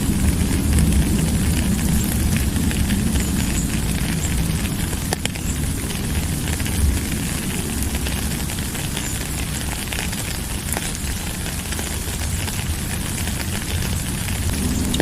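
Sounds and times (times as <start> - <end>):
low rumble: 0.0 - 9.0, 12.6 - 15.0
rain falling: 0.0 - 15.0.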